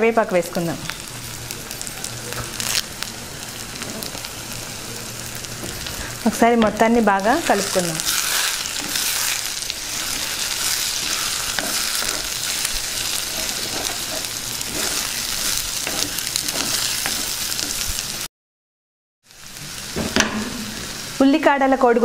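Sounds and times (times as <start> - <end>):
egg sizzling in hot oil: 0.2 - 18.3
wooden spatula scraping a pot: 7.4 - 18.0.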